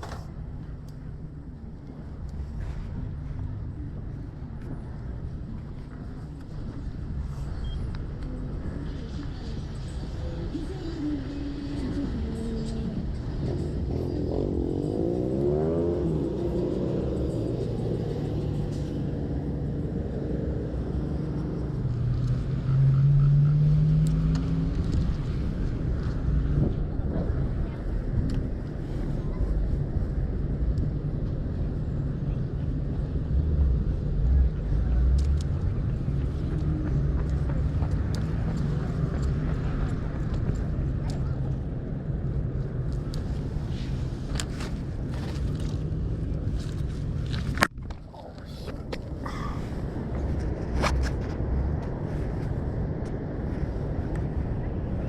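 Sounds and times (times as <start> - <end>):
vehicle humming: 0.0 - 55.0
vehicle engine accelerating: 9.8 - 28.0.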